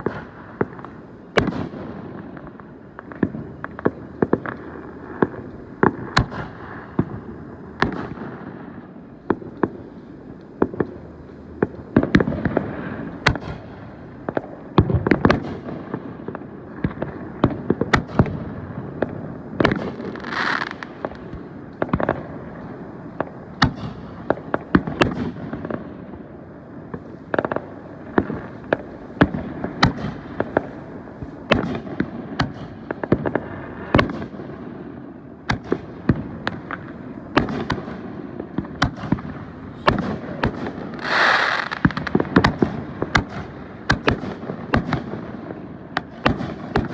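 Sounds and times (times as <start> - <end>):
fireworks bangs and booms: 0.0 - 46.9
fireworks rumbling: 0.0 - 46.9
hissing rush: 41.0 - 42.0.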